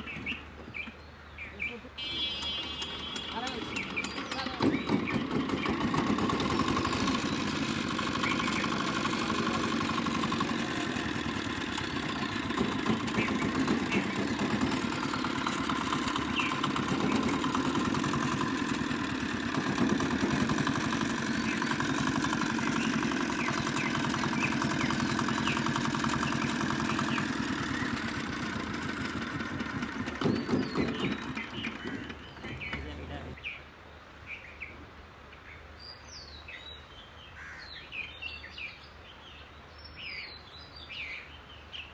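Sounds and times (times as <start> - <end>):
diesel engine chugging: 2.0 - 33.4.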